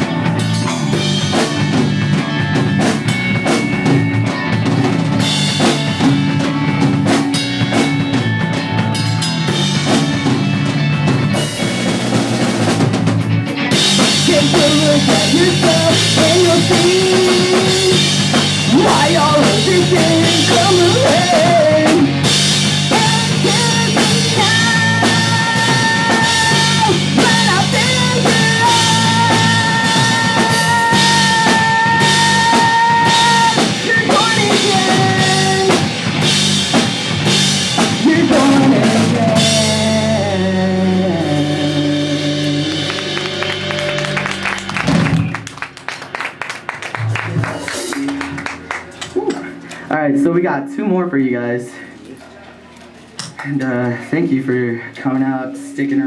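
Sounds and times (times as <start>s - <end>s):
pop punk band playing live: 0.0s - 50.0s
cymbals washing: 47.3s - 51.0s.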